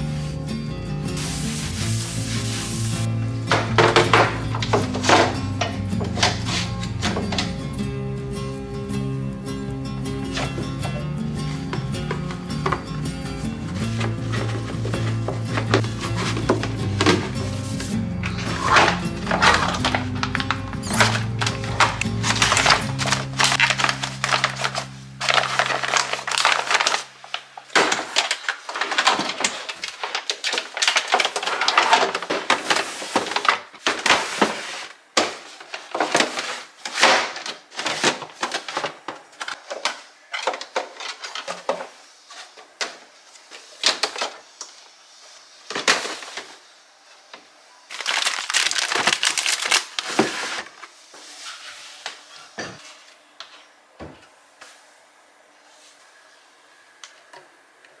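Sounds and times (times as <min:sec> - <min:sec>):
background music: 0:00.0 - 0:26.4
rustling and crinkling: 0:01.2 - 0:07.7, 0:10.2 - 0:44.8, 0:45.6 - 0:46.7, 0:47.9 - 0:53.8
handling clicks and scrapes: 0:13.7 - 0:26.8.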